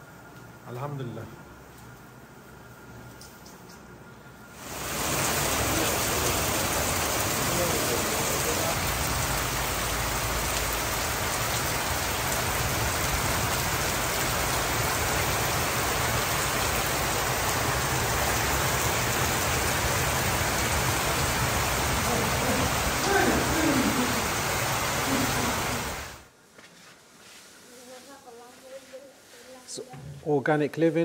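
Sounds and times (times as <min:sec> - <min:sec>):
heavy rain falling: 0:04.6 - 0:26.3.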